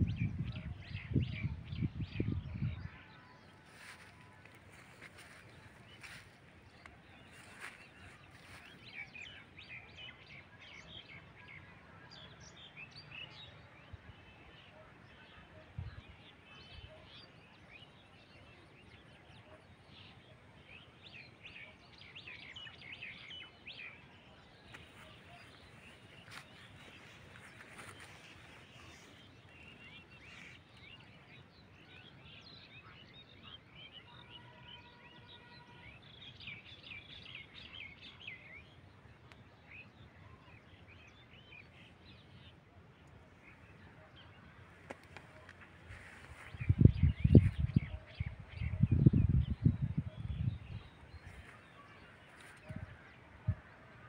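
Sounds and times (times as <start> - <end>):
small birds chirping: 3.5 - 10.9, 16.3 - 33.6.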